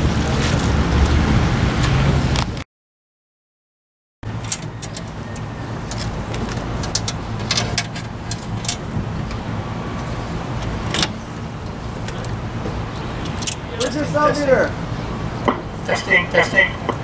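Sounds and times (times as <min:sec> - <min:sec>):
vehicle engine idling: 0:04.2 - 0:17.0.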